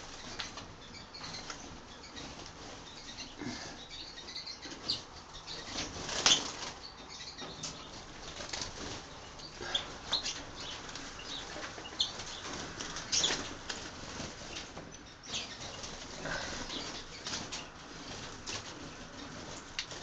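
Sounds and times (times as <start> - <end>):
finches flapping wings: 4.7 - 20.0.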